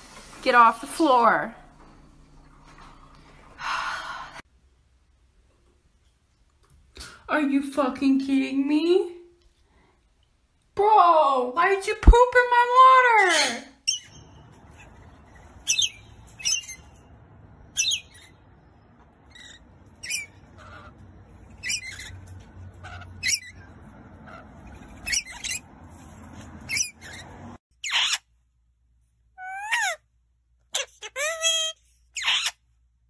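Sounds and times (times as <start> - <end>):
low room hum: 0.0 - 33.0
parrot squawking: 13.1 - 17.1, 17.7 - 25.7, 26.6 - 28.3, 29.4 - 30.1, 30.7 - 32.6
parrot chirping: 13.1 - 28.4, 29.4 - 30.1, 30.7 - 32.8.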